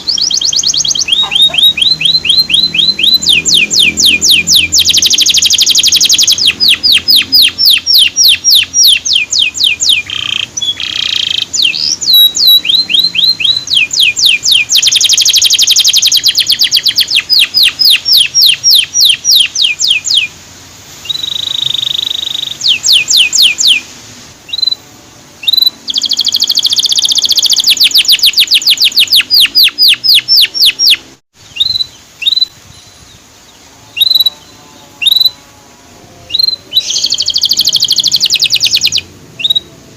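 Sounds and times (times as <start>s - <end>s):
canary chirping: 0.0s - 20.4s, 21.0s - 23.8s, 24.5s - 33.2s, 33.9s - 35.5s, 36.2s - 39.8s
buzzy bird trills: 25.4s - 39.7s.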